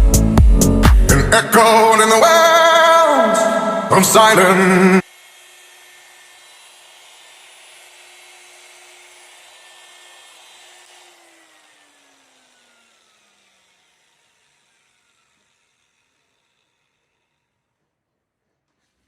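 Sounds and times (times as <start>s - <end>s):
electric polishing machine: 3.8s - 17.7s.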